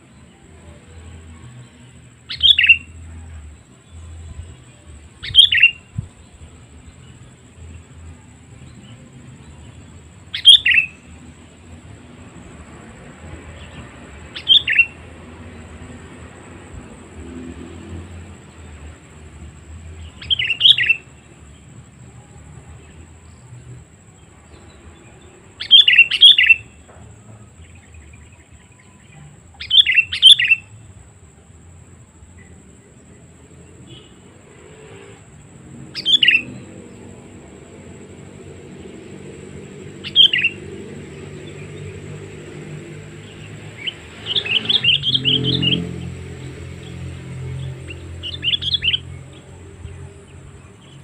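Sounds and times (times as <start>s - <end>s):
bulbul calling: 2.3s - 3.0s, 5.2s - 6.2s, 10.3s - 11.1s, 13.6s - 15.0s, 20.0s - 21.1s, 25.6s - 26.8s, 29.5s - 30.7s, 35.9s - 36.7s, 40.0s - 41.7s, 43.2s - 45.9s, 47.6s - 49.6s.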